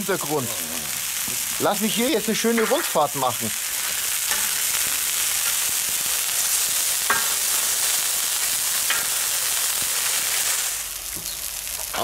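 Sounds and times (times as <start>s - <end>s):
food sizzling on hot plate: 0.0s - 12.0s.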